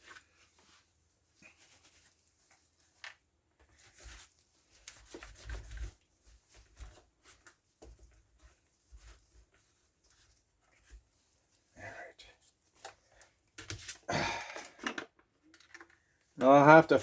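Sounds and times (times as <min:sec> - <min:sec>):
handling clicks and rustles: 0:00.0 - 0:11.7, 0:12.4 - 0:17.0.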